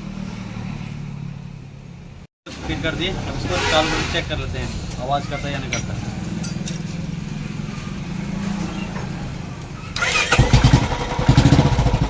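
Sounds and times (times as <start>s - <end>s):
motorcycle engine starting and running: 2.5s - 12.0s.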